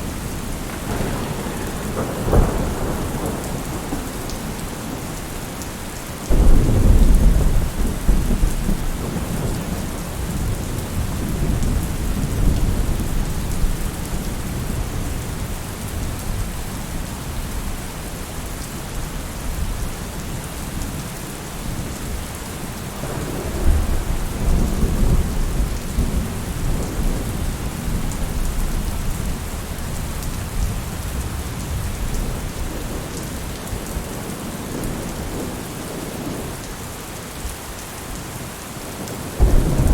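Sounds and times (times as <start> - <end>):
thunder rumbling: 0.0 - 5.6, 6.3 - 16.5, 23.0 - 36.5, 39.4 - 39.9
steady rain falling: 0.0 - 39.9.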